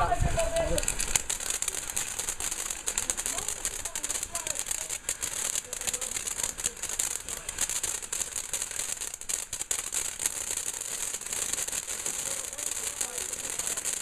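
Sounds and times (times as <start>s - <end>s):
bonfire crackling: 0.0s - 14.0s
steady high hiss: 0.0s - 14.0s.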